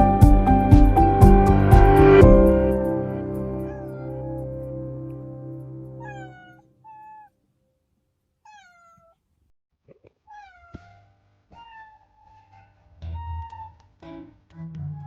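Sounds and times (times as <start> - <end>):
kitten meowing: 3.6 - 4.4, 6.0 - 7.3, 8.5 - 9.2, 10.3 - 10.9, 11.5 - 12.4.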